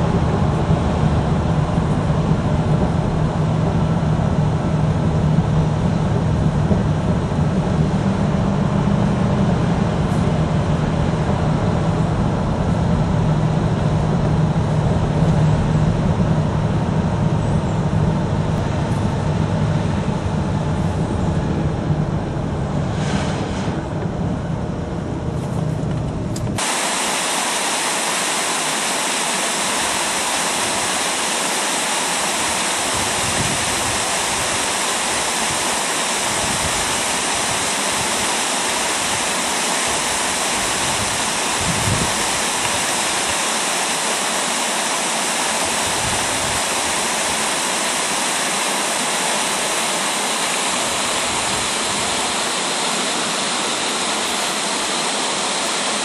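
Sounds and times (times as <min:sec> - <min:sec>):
small waterfall rushing: 0:26.6 - 0:56.0.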